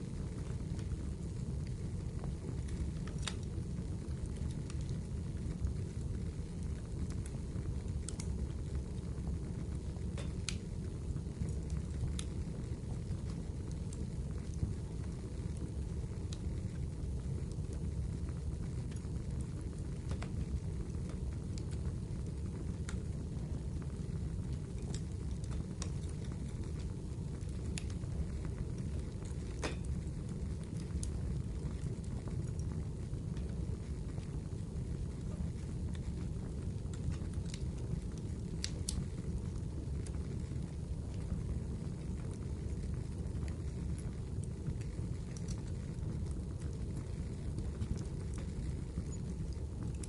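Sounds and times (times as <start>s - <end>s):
wood fire rumble: 0.0s - 50.0s.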